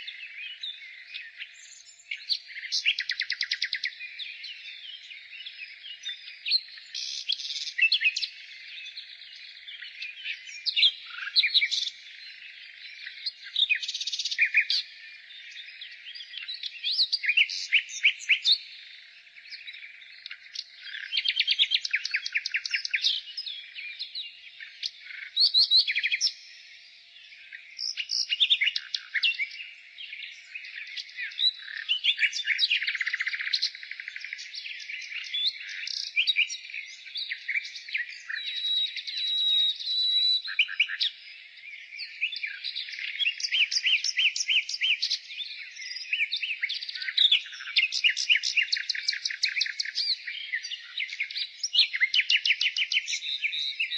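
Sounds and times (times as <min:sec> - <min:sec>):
nightingale singing: 0:00.0 - 0:53.9.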